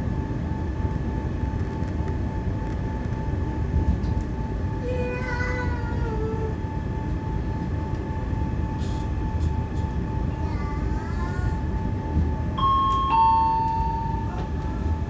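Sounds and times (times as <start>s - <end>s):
moving train rumbling: 1.4s - 15.0s
two-note falling chime: 12.6s - 14.6s.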